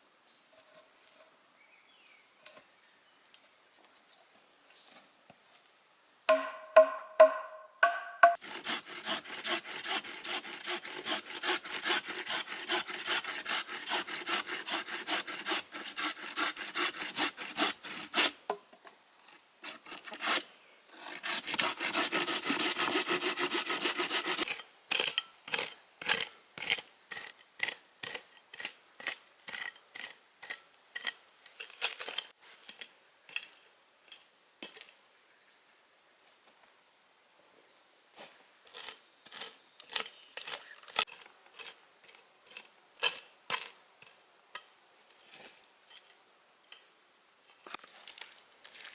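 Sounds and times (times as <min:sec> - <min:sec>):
ringing knocks: 0:06.3 - 0:08.4
hand tool sawing wood: 0:06.4 - 0:18.5, 0:19.6 - 0:31.1.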